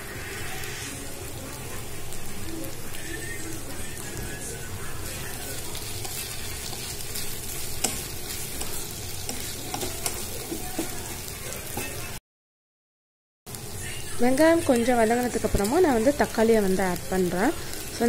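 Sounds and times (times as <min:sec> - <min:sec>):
vegetables sizzling in oil: 0:00.0 - 0:12.2, 0:13.5 - 0:18.0
spatula tapping and scraping pan: 0:06.0 - 0:11.1.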